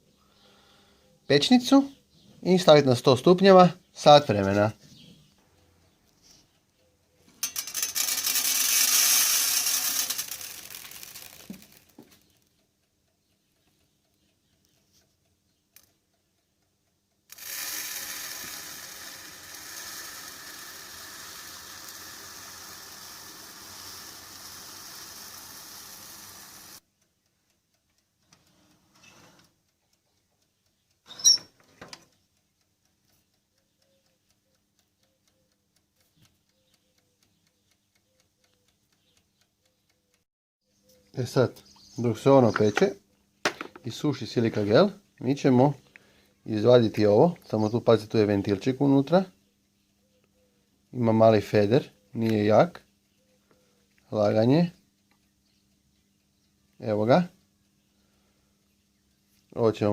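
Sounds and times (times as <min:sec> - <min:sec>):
short clicks: 0:07.3 - 0:12.7
gel beads pouring out: 0:07.7 - 0:12.0, 0:17.3 - 0:26.8.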